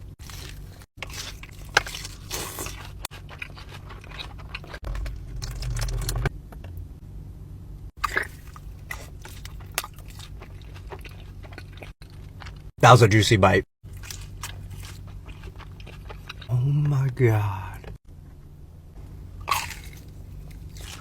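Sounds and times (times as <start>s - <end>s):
crunchy chewing: 0.1s - 6.2s, 8.0s - 12.7s, 13.8s - 16.6s, 19.4s - 21.0s.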